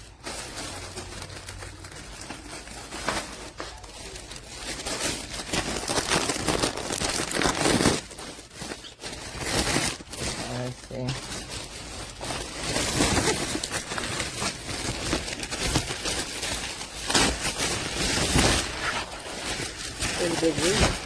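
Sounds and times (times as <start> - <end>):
plastic packaging crinkling: 0.0 - 21.0.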